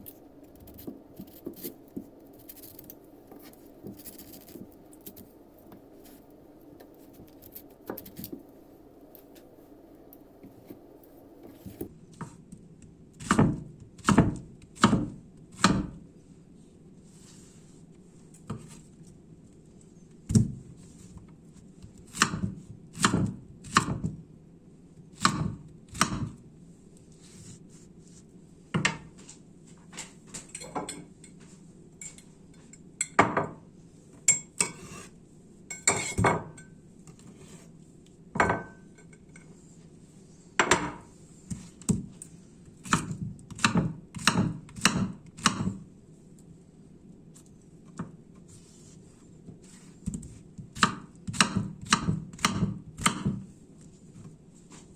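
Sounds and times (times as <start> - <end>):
cutlery and dishes clinking: 35.7 - 36.8.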